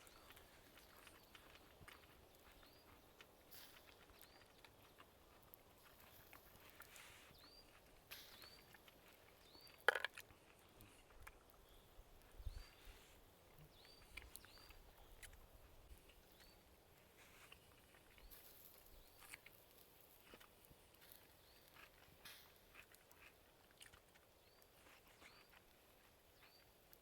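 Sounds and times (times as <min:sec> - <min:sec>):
small bird chirping: 0:00.0 - 0:03.2, 0:03.8 - 0:05.1, 0:05.9 - 0:10.2, 0:11.6 - 0:15.4, 0:24.4 - 0:25.7, 0:26.3 - 0:26.8.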